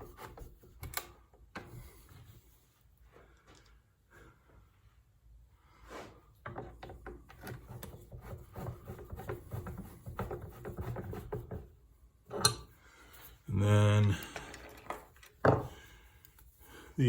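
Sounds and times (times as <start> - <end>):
small parts clicking and tapping: 14.0 - 16.5.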